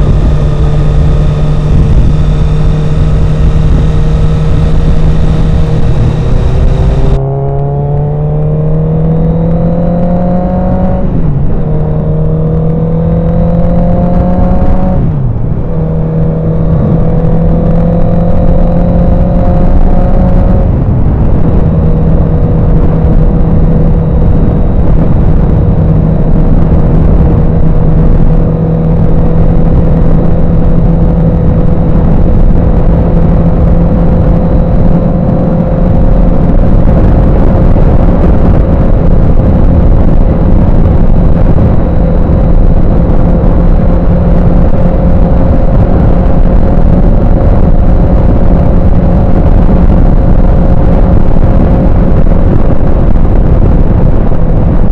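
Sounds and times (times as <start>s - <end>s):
motorcycle engine drone: 0.0s - 54.9s
wind buffeting microphone: 0.0s - 54.9s.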